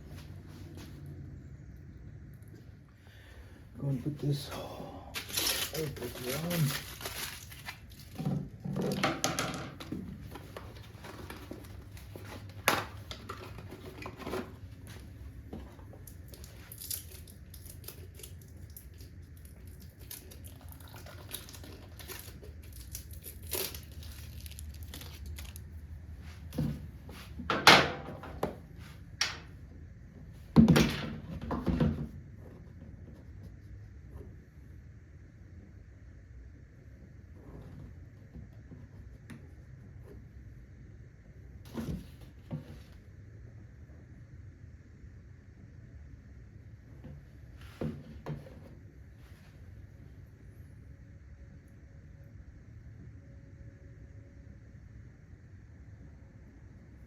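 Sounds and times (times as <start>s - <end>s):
crinkling and rustling: 5.2s - 27.4s.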